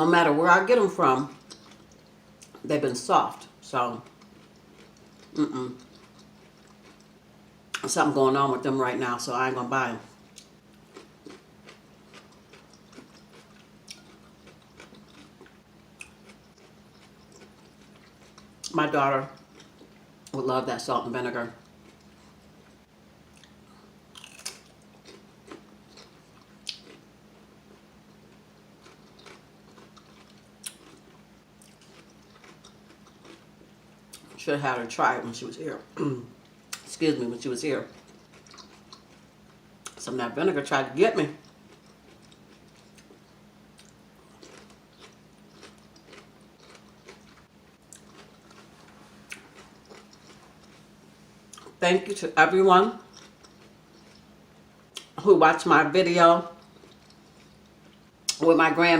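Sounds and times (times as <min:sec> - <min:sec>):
faint low hum: 0:00.0 - 0:58.9
crispy chicken wings crunching: 0:10.9 - 0:18.5, 0:23.4 - 0:27.0, 0:28.3 - 0:33.5, 0:41.4 - 0:50.8.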